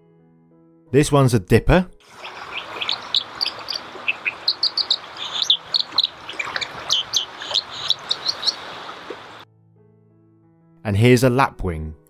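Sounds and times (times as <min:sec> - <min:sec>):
bird singing high sharp notes: 0:02.1 - 0:09.4
steady background hiss: 0:02.1 - 0:09.4.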